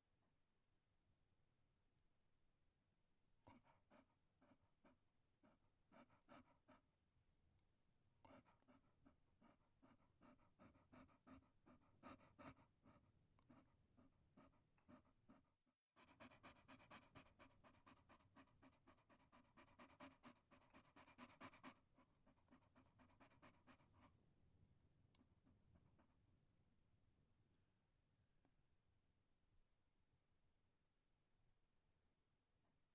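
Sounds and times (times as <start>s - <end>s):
dog panting rapidly: 3.5s - 6.9s, 8.2s - 24.2s.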